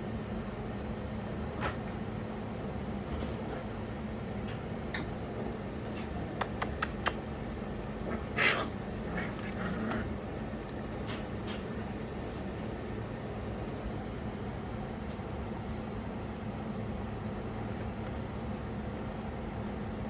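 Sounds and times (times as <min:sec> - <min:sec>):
steady low hum: 0:03.8 - 0:20.0
light clicks: 0:06.4 - 0:07.2.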